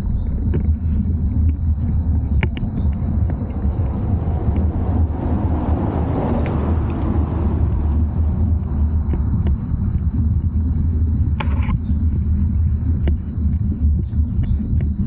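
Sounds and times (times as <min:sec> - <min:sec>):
wind buffeting microphone: 0:00.0 - 0:15.0
sharp clicks: 0:02.2 - 0:03.7.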